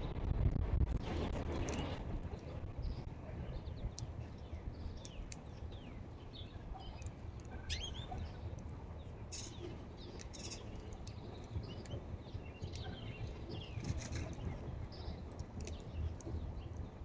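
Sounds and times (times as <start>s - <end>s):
low steady rumble: 0.0s - 17.0s
songbirds chirping: 1.1s - 17.0s.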